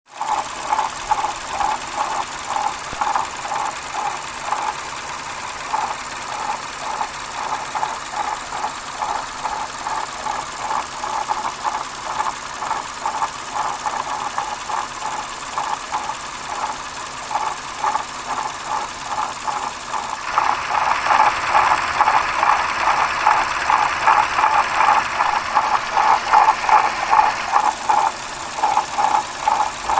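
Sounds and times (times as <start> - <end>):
rhythmic engine noise: 0.1 - 29.9.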